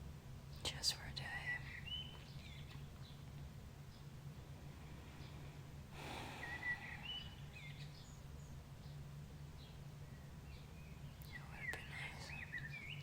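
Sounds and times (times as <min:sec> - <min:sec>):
steady low hum: 0:00.0 - 0:13.0
songbirds singing: 0:00.3 - 0:13.0
soft exhale: 0:04.7 - 0:07.6.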